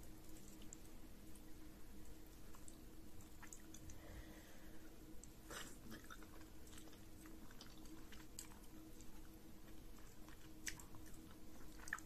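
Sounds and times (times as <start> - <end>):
low steady hum: 0.0 - 12.0
chewing and wet mouth clicks: 0.2 - 1.0, 2.5 - 4.0, 5.2 - 12.0.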